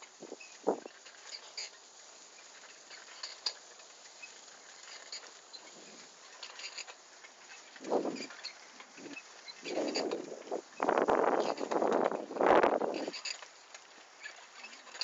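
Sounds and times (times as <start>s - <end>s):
bicycle rattles and clicks: 0.0s - 15.0s.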